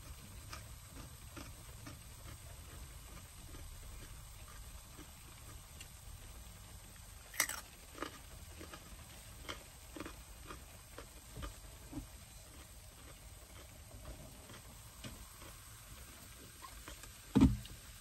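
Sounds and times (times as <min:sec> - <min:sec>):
person chewing food: 0:00.0 - 0:06.0, 0:07.2 - 0:17.2.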